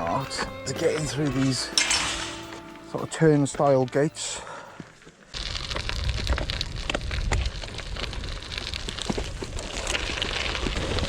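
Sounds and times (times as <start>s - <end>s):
bike tyres crunching on gravel: 0.0s - 11.0s
wind rumble: 5.3s - 11.0s.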